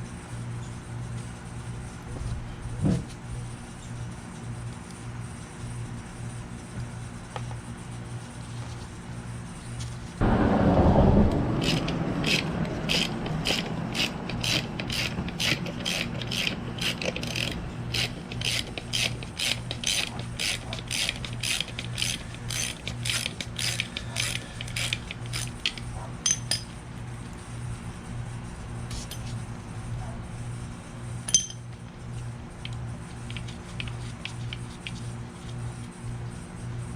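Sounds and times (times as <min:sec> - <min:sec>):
hand ratchet clicking: 0:11.6 - 0:26.6.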